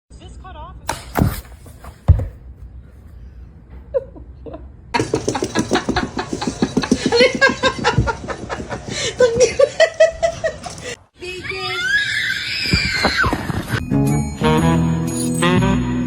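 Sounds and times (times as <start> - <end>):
sharp thump: 0.9 - 2.4
person laughing hard: 3.9 - 11.0.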